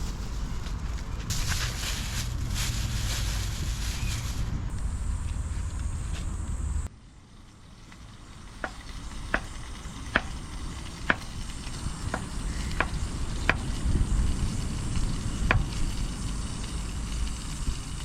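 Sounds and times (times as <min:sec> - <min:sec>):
food sizzling in a pan: 0:07.2 - 0:18.0.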